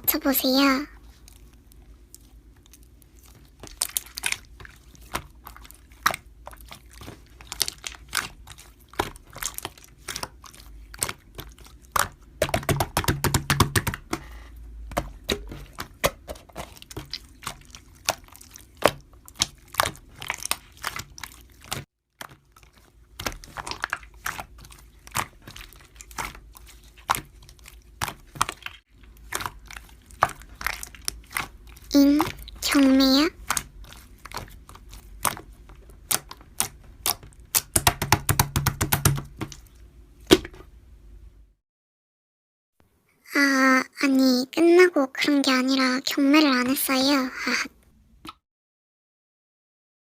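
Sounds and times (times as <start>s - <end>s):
slime squeezed clicking and popping: 36.0s - 39.5s.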